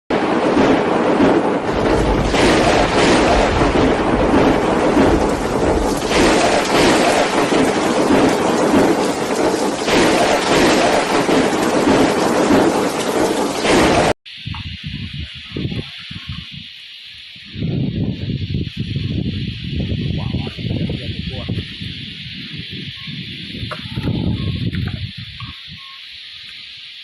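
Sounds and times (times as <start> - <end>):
heavy rain: 0.1 - 16.4, 17.4 - 27.0
deep rumble: 0.1 - 16.6
strong wind: 0.1 - 26.6.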